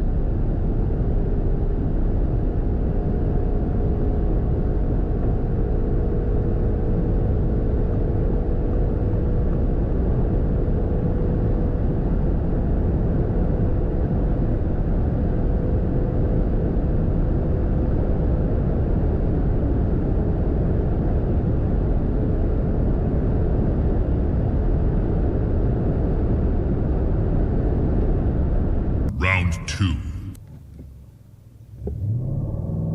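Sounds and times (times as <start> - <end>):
car engine drone at high speed: 30.2 - 32.9.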